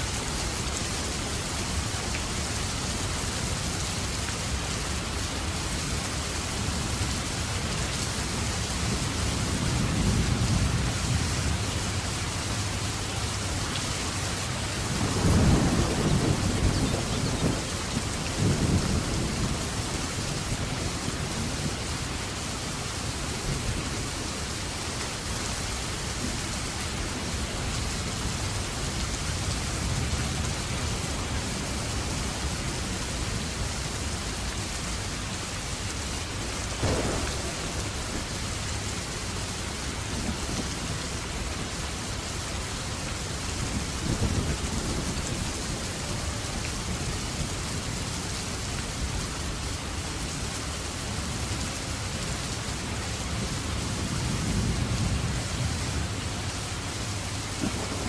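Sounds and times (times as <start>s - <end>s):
heavy rain falling: 0.0s - 58.0s
thunder rolling and cracking: 15.0s - 19.6s, 36.8s - 38.6s.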